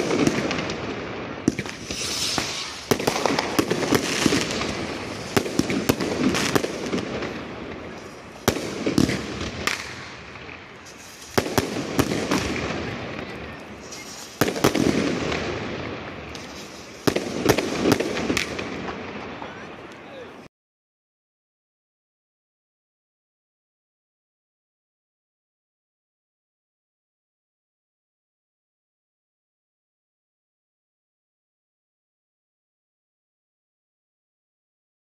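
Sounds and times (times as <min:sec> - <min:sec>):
fireworks bangs: 0:00.0 - 0:20.5
fireworks crackling and hissing: 0:00.0 - 0:20.5.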